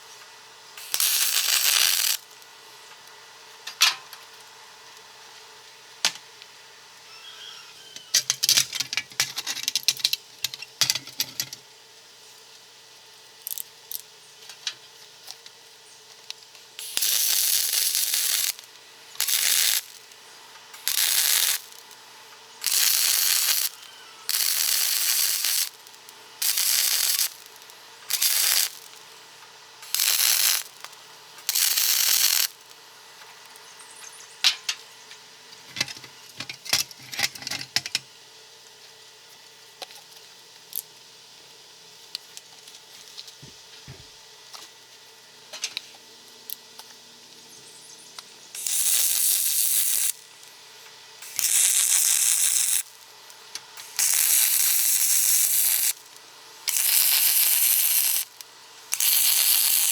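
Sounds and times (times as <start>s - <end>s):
short bursts of hissing: 0.8s - 2.3s, 16.8s - 20.1s, 20.7s - 21.9s, 22.6s - 29.0s, 29.8s - 32.6s, 48.6s - 50.5s, 51.2s - 53.0s, 53.8s - 59.9s.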